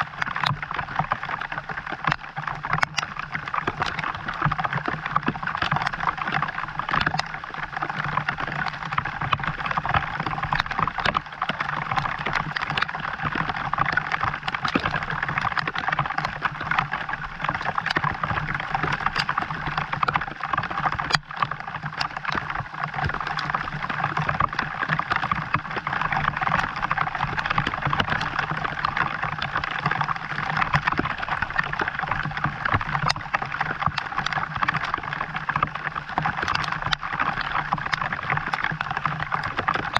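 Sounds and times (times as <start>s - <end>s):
raindrop ticks: 0.0s - 39.9s
steady rain: 0.0s - 39.9s.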